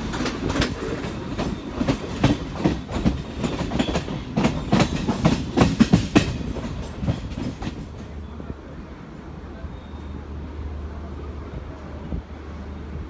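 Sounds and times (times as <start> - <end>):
train wheels clattering over rail joints: 0.0 - 8.1
low train rumble: 0.0 - 13.0.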